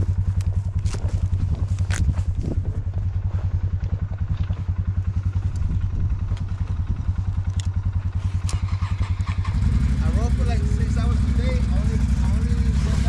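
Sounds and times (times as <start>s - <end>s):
vehicle engine idling: 0.0s - 13.0s
light clicks and clatter: 3.8s - 4.8s, 7.3s - 8.6s.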